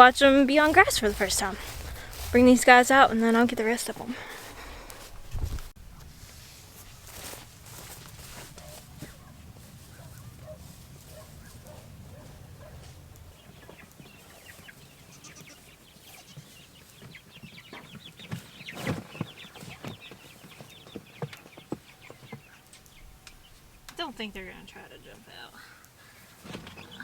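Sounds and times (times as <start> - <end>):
chicks peeping: 6.5 - 27.0.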